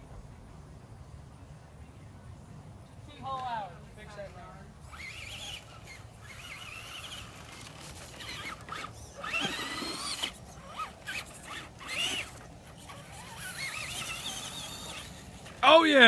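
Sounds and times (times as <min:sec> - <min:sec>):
electric motor whine: 0:04.8 - 0:15.6.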